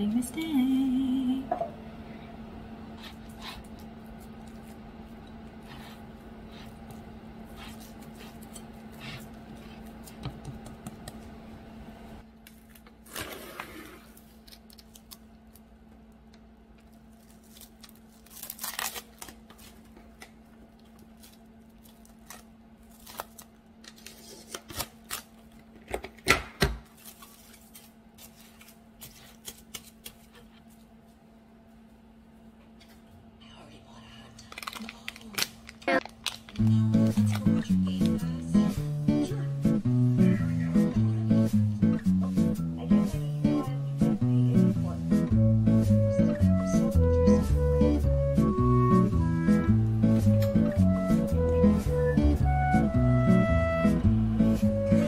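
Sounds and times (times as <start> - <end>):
steady low hum: 0.0 - 25.9, 27.0 - 55.0
cling wrap pulled and crinkled: 16.8 - 25.6, 26.9 - 30.9, 34.4 - 38.1.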